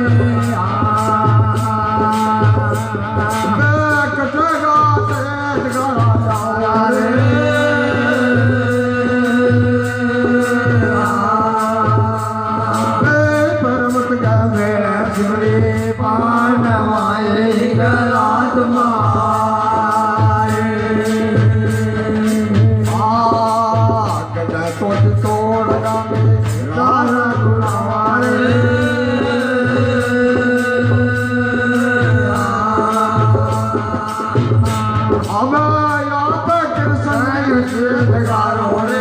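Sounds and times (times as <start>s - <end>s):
devotional melody with bending notes: 0.0s - 39.0s.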